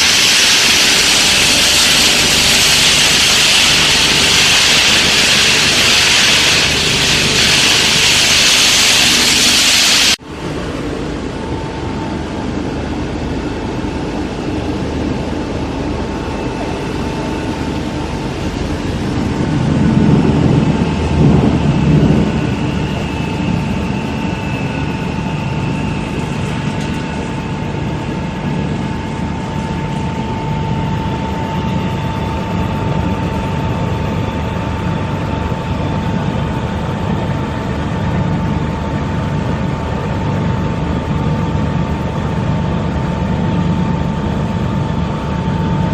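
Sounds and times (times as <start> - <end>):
grinder machine humming: 0.0 - 10.2
machine whine: 0.0 - 45.9.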